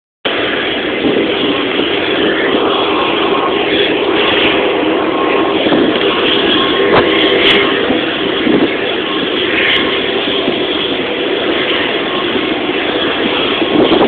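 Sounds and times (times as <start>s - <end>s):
airplane engines humming: 0.2s - 14.0s.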